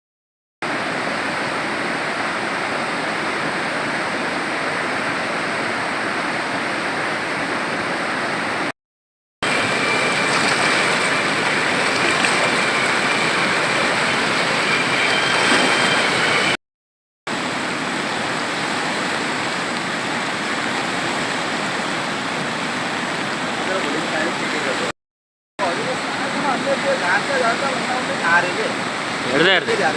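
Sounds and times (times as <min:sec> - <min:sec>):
river water rushing: 0:00.7 - 0:08.7, 0:09.5 - 0:16.6, 0:17.3 - 0:24.9, 0:25.7 - 0:29.9.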